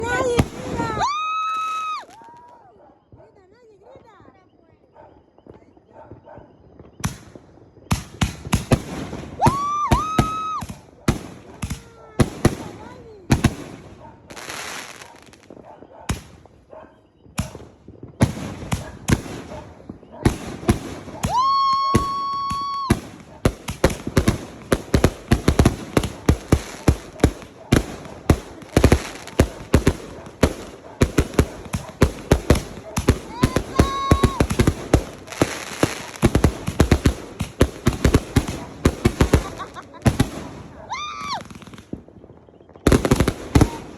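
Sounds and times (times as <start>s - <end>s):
firework bangs: 0.0s - 2.5s, 5.0s - 43.9s
whistling firework: 0.0s - 43.9s
high firework whistle: 9.4s - 10.8s, 21.1s - 23.9s, 31.2s - 37.0s.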